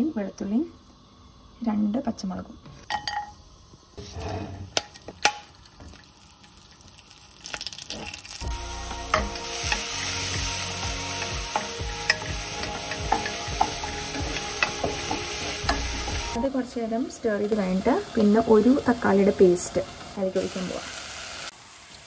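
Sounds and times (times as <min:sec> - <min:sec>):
frying sizzle: 0:02.8 - 0:22.0
food knocking into pan: 0:12.0 - 0:16.3.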